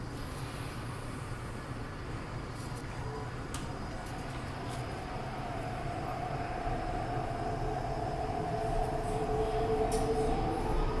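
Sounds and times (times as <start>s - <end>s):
train wheels rumbling on rails: 3.9s - 11.0s.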